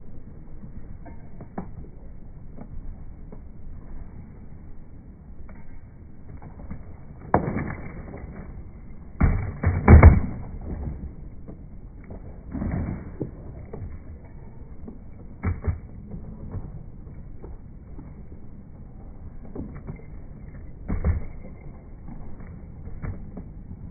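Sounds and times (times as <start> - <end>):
skateboard clattering down: 9.2 - 11.2
skateboard tail knocking ground: 9.2 - 13.8.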